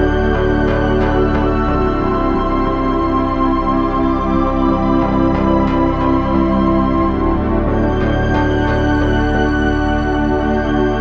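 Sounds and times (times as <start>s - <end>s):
slow new-age chords: 0.0s - 11.0s.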